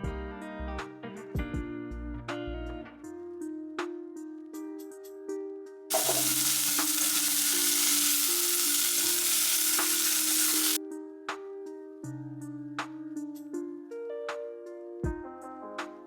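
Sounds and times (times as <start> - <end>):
food sizzling in a frying pan: 5.9 - 10.8.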